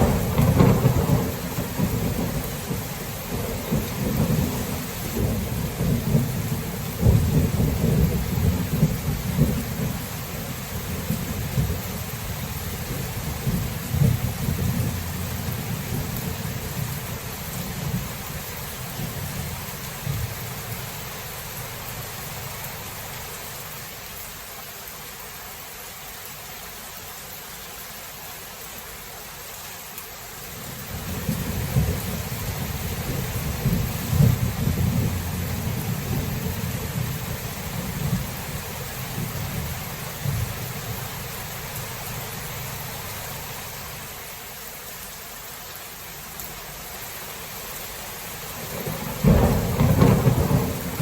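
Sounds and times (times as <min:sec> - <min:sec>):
low rolling thunder: 0:00.0 - 0:21.6, 0:30.6 - 0:41.1, 0:48.6 - 0:51.0
heavy rain: 0:00.0 - 0:51.0.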